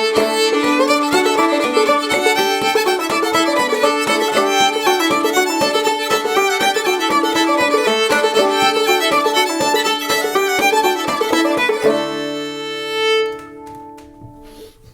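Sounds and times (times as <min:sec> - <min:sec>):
banjo plucking: 0:00.0 - 0:14.1
fiddle bowed melody: 0:00.0 - 0:14.7.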